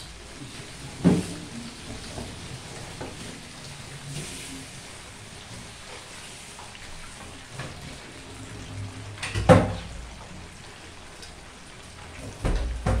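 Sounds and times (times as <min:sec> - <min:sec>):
food frying in hot oil: 0:00.0 - 0:13.0.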